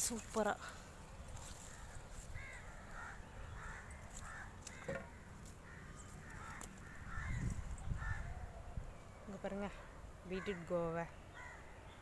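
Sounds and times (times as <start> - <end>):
crows cawing: 1.6 - 8.5, 10.3 - 10.8, 11.4 - 11.7.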